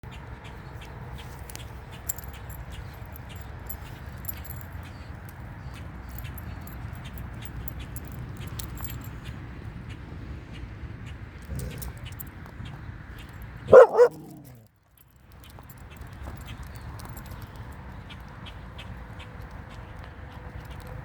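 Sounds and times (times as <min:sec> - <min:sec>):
dog collar tags jingling: 0:02.0 - 0:09.2, 0:11.4 - 0:12.2, 0:13.7 - 0:17.7.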